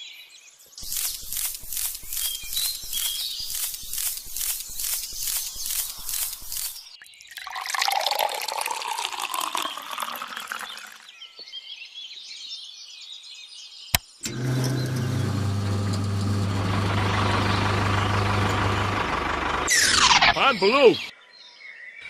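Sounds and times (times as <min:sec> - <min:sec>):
sharp click: 0:00.8 - 0:06.8
low engine hum: 0:14.3 - 0:21.1.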